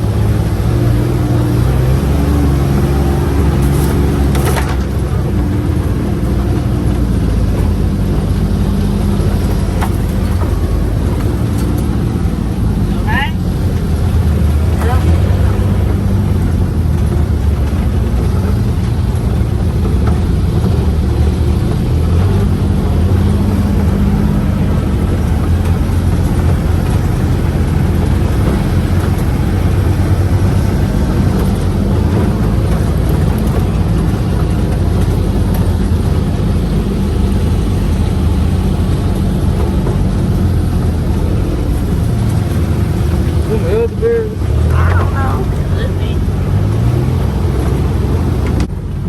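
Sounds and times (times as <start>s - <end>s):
utility vehicle engine droning: 0.0s - 49.0s.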